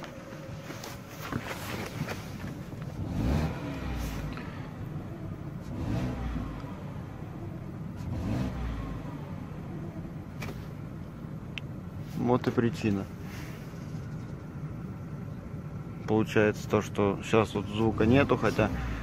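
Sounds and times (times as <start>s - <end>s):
car engine revving: 2.6s - 12.0s, 17.2s - 19.0s.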